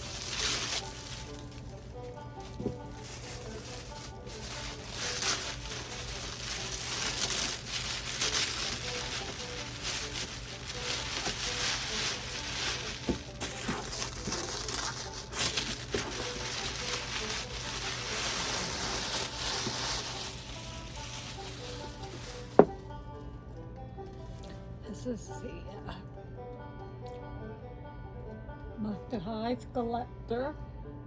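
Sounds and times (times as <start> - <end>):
plastic and cardboard crinkling: 0.0 - 23.0.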